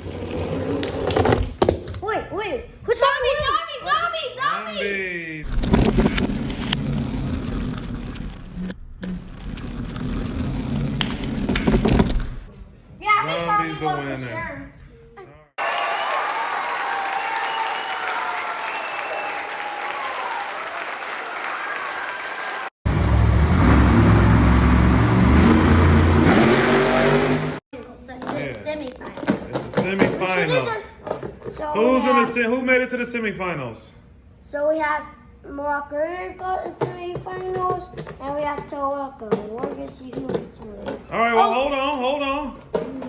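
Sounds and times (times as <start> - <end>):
applause: 15.6 - 22.8
engine revving: 22.9 - 27.6.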